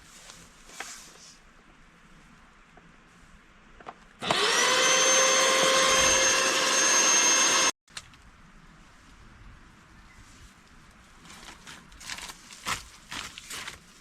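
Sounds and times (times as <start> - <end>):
small electric motor whirring: 4.2 - 7.8.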